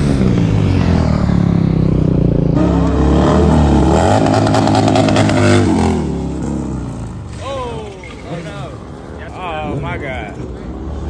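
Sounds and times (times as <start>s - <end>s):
motorcycle engine revving: 0.0s - 7.3s.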